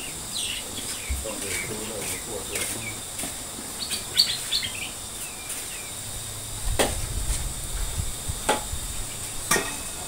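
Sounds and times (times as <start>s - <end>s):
birds chirping: 0.0s - 6.5s.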